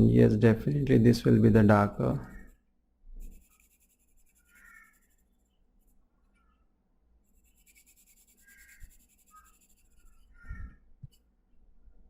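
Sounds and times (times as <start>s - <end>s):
pencil scratching on paper: 3.2s - 5.9s, 7.2s - 10.5s.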